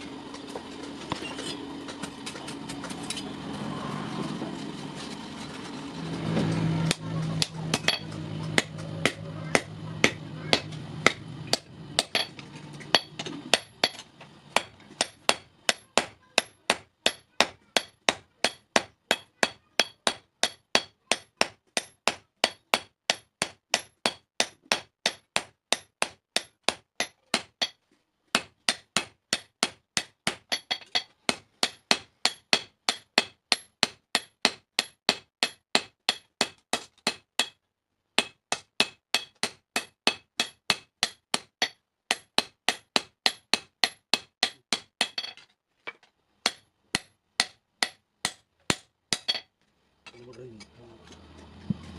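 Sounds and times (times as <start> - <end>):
low hum: 0.0 - 15.2, 50.1 - 51.9
hammer striking metal on anvil: 6.4 - 27.8, 28.4 - 37.6, 38.2 - 45.4, 46.4 - 49.5.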